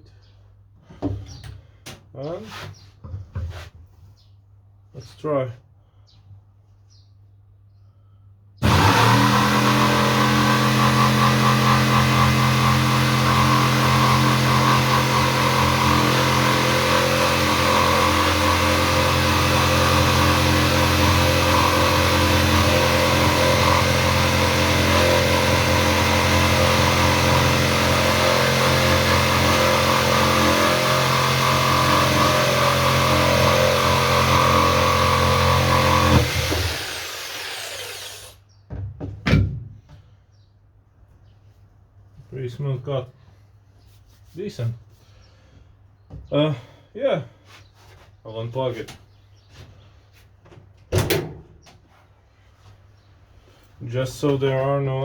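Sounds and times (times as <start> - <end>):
jigsaw cutting through board: 8.6 - 38.4.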